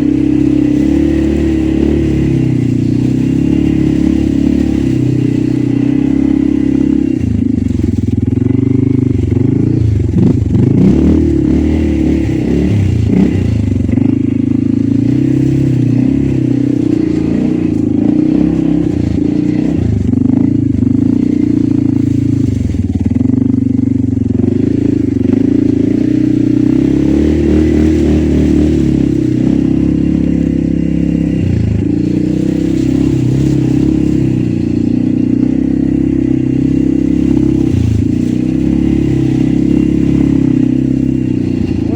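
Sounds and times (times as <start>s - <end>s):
atv engine revving: 0.0s - 41.9s.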